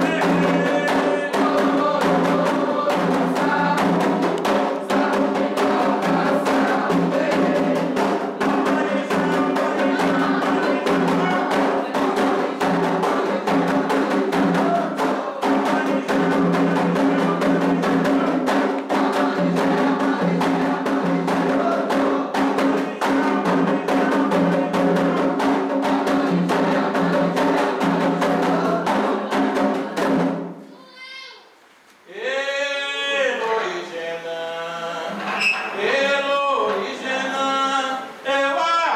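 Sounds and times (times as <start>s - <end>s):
hand drums playing fast rhythm: 0.0s - 30.5s
group of voices singing: 0.0s - 30.6s, 32.1s - 38.9s.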